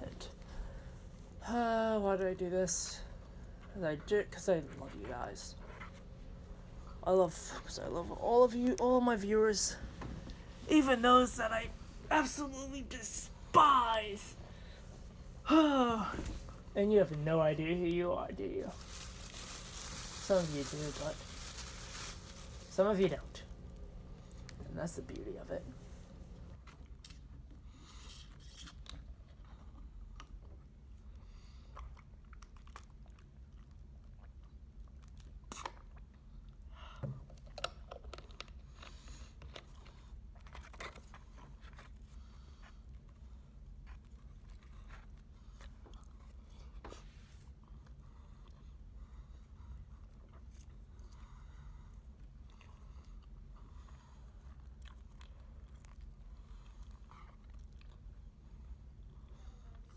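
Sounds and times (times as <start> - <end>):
low steady hum: 0.0 - 59.9
chewing and crunching: 26.5 - 59.9
person chewing and crunching: 31.7 - 36.6, 54.4 - 58.1.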